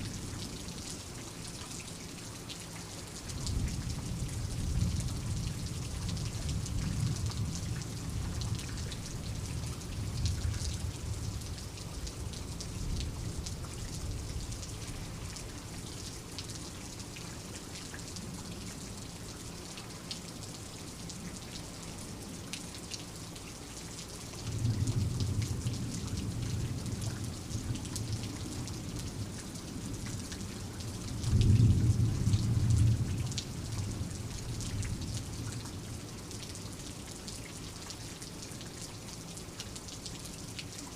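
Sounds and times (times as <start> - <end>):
steady rain: 0.0 - 40.9
low rolls of thunder: 24.5 - 28.9, 31.1 - 35.2.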